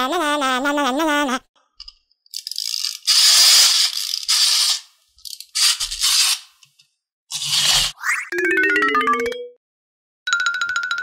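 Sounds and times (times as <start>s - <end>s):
wind-up toy ratcheting clicks: 2.3s - 6.3s.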